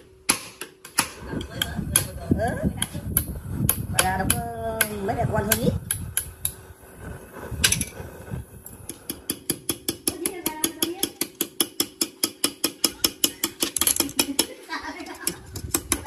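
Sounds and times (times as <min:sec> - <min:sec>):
metal mechanism clicking: 0:13.4 - 0:14.4.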